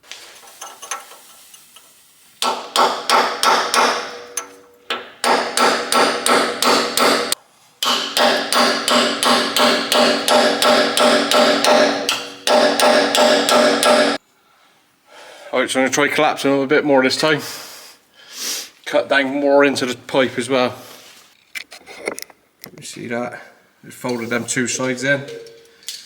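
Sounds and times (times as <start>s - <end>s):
hammer striking steel tube: 2.4s - 14.2s.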